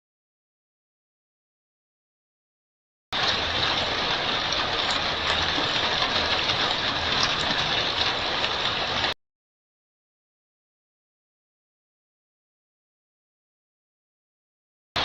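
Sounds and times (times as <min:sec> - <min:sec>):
heavy rain pouring: 0:03.2 - 0:09.2.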